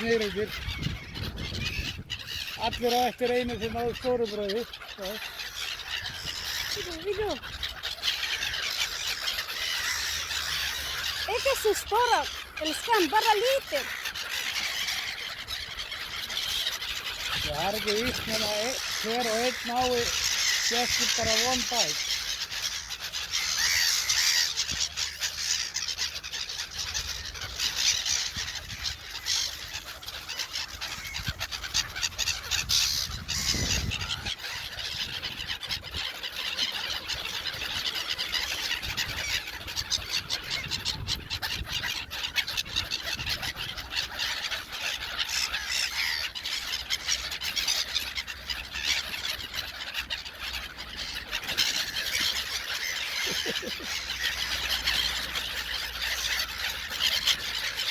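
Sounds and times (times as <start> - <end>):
gulls squealing and crying: 0.0 - 57.9.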